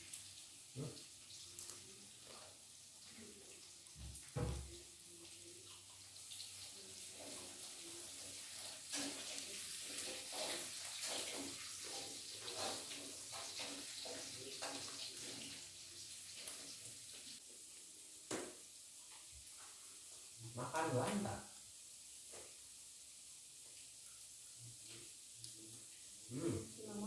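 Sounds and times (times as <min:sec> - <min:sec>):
food sizzling in hot oil: 0:00.0 - 0:27.0
spatula scraping and tapping wok: 0:07.0 - 0:15.6.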